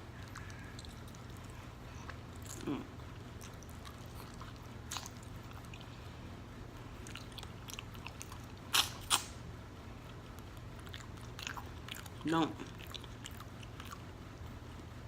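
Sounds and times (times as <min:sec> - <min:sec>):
person chewing food: 0:00.0 - 0:14.2
mouth clicks: 0:07.9 - 0:09.4.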